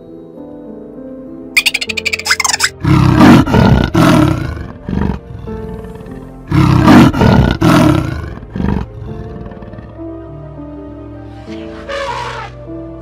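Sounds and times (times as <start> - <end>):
background music: 0.0 - 13.0
big cat roaring: 2.8 - 10.1.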